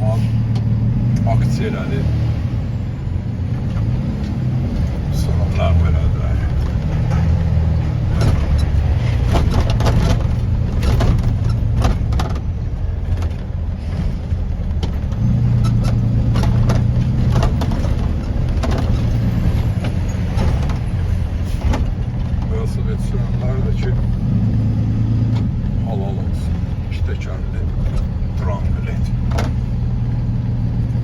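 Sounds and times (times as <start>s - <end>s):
vehicle engine rumbling: 0.0s - 31.0s
light knocks and rattles: 6.2s - 24.4s, 26.5s - 31.0s.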